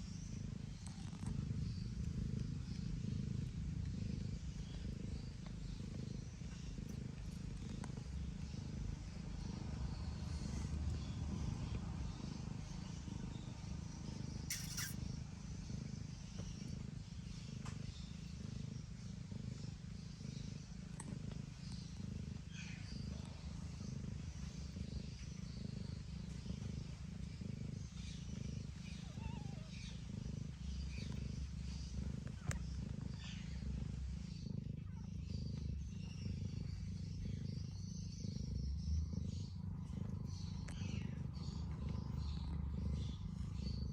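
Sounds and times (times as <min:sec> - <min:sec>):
cat purring: 0:00.0 - 0:43.9
faint small clicks: 0:14.5 - 0:15.0, 0:17.6 - 0:17.9, 0:32.3 - 0:32.7.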